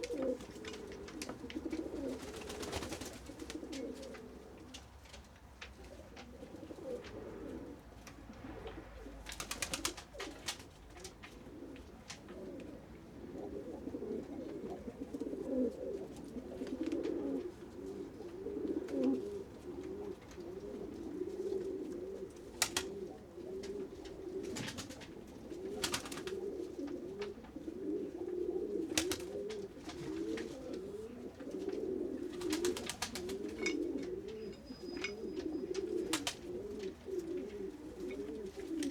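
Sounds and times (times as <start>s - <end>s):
pigeons cooing: 0.0s - 38.9s.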